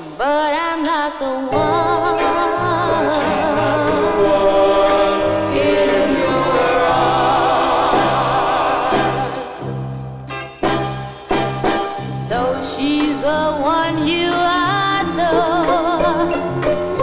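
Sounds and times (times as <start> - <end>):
woman singing with vibrato: 0.0 - 6.2, 12.3 - 16.6
soul band backing: 1.5 - 17.0.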